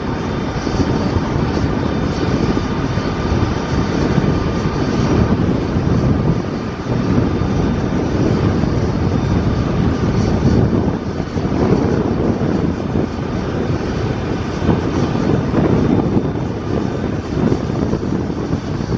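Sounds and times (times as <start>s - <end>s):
faint thin whine: 0.0s - 18.9s
jet engines rumbling: 0.0s - 18.9s.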